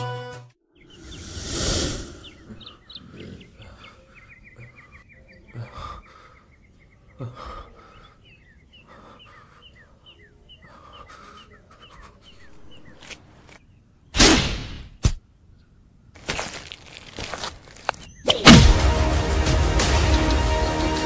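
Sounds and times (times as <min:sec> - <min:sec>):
small birds chirping: 0:00.6 - 0:14.2, 0:15.4 - 0:18.4.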